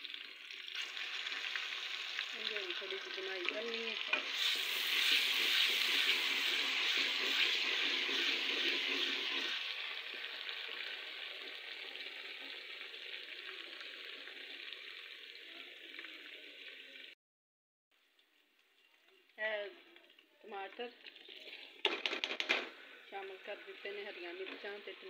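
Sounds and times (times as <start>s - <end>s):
masala sizzling in oil: 0.0s - 17.2s, 18.0s - 21.9s, 22.7s - 25.0s
wooden spoon stirring: 4.1s - 9.6s.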